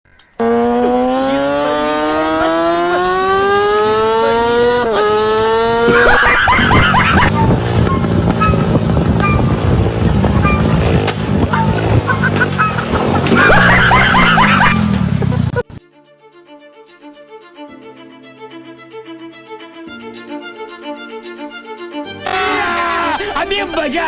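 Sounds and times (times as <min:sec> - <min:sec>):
motorcycle engine revving: 0:00.3 - 0:15.8.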